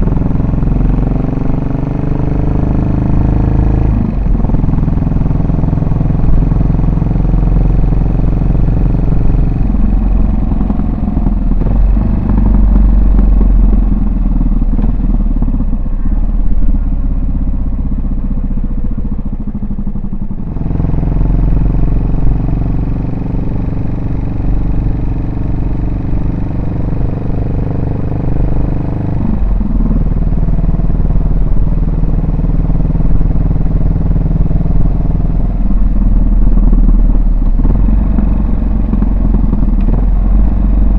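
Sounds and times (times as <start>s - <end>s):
motorcycle engine thumping: 34.7s - 40.9s.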